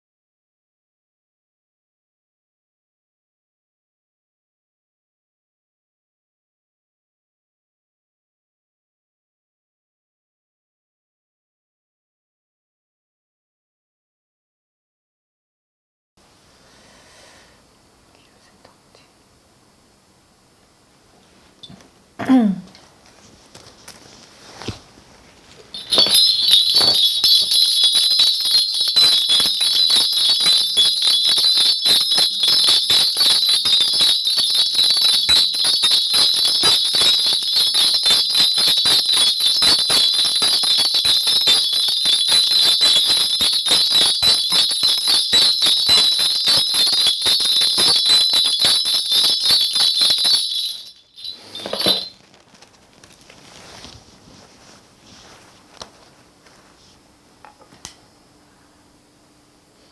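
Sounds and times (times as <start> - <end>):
bells jingling: 23.8 - 56.7.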